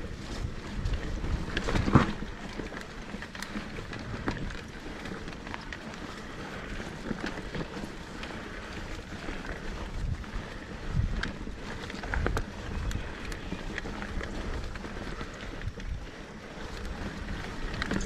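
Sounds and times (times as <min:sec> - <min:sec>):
bike rattles and knocks: 0:00.0 - 0:18.0
bike tyre noise on dirt: 0:00.0 - 0:18.0.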